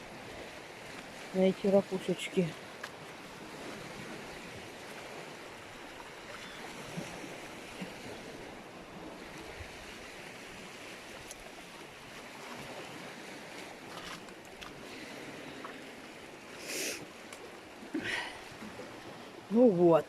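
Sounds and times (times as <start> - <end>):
sea surf washing on shore: 0.0 - 20.0.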